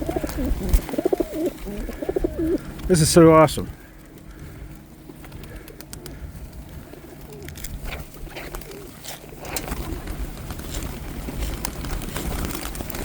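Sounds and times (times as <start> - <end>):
pigeons cooing: 0.0 - 3.1, 3.7 - 13.0.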